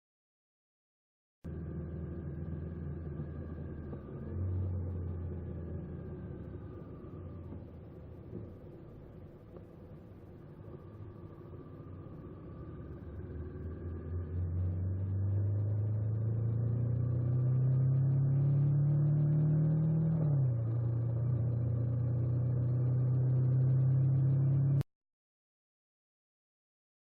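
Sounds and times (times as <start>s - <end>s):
motorcycle engine revving: 10.7s - 24.8s.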